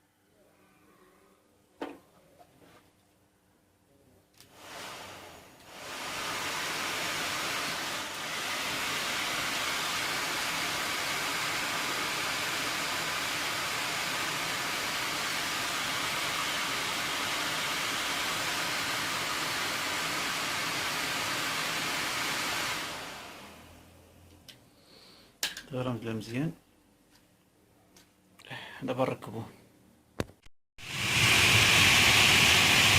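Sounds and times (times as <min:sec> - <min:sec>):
blower motor whirring: 0:04.5 - 0:23.9, 0:30.8 - 0:32.9.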